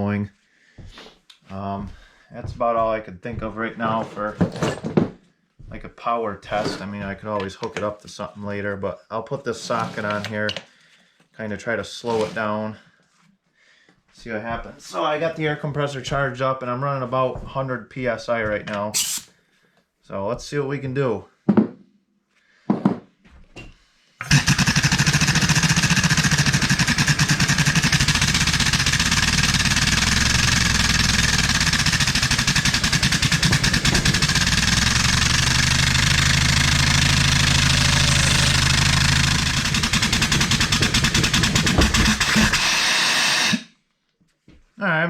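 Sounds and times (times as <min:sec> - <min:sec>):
air hissing: 0:19.0 - 0:19.3
air-powered engine clattering: 0:24.2 - 0:43.7.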